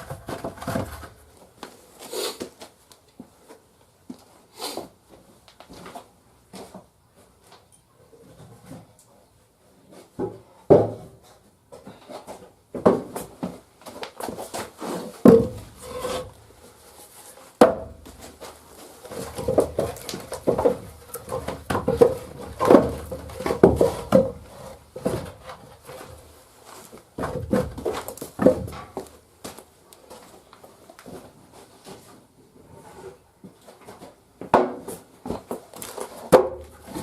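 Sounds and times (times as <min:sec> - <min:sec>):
logs knocking and scraping: 0:00.0 - 0:01.6, 0:10.1 - 0:29.6, 0:32.7 - 0:37.0.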